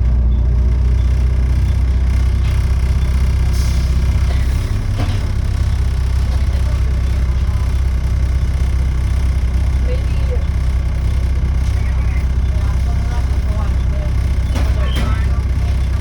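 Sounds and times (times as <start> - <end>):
bus diesel engine droning: 0.0 - 16.0.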